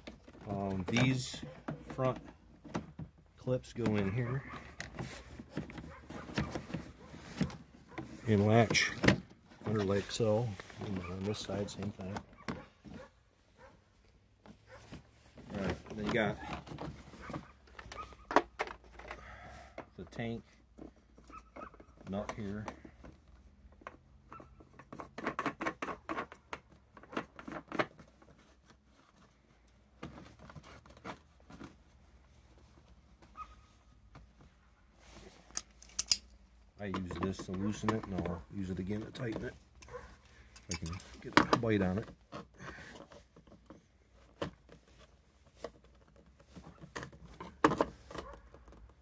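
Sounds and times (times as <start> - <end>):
pliers clicking on nut: 35.6 - 36.3.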